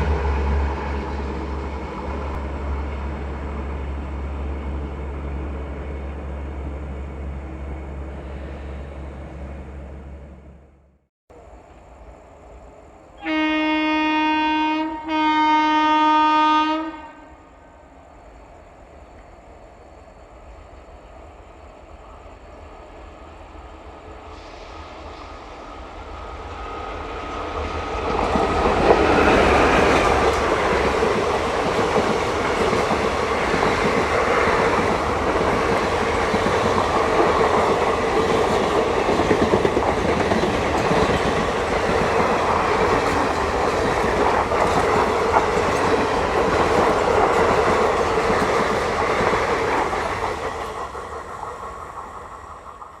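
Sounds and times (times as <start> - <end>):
train wheels clattering over rails: 27.3 - 53.0.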